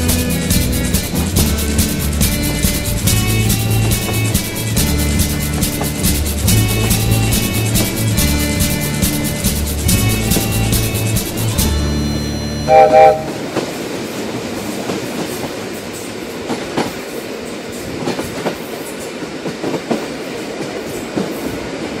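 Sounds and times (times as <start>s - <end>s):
train rumbling: 0.0s - 22.0s
wheels clacking over rail joints: 0.0s - 22.0s
train horn blasts: 10.0s - 13.6s.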